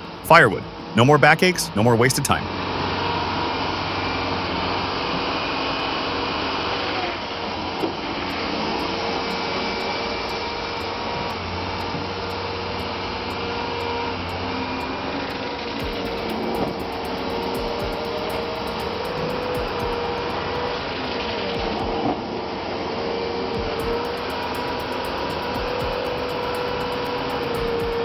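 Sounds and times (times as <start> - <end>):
machine motor humming: 7.5 - 22.2, 23.6 - 28.0.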